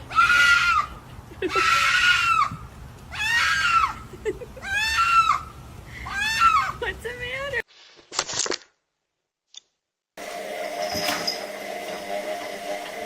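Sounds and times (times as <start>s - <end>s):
goat-like animal screaming: 0.1s - 0.9s, 1.5s - 4.0s, 4.6s - 5.5s, 6.1s - 6.8s.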